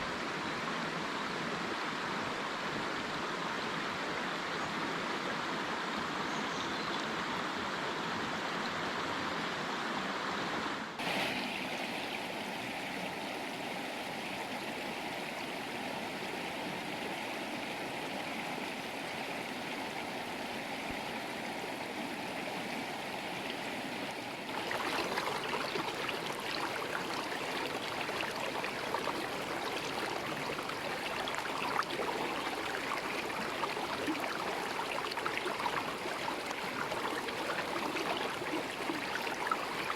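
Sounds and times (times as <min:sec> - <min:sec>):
river water rushing: 0:09.9 - 0:39.9.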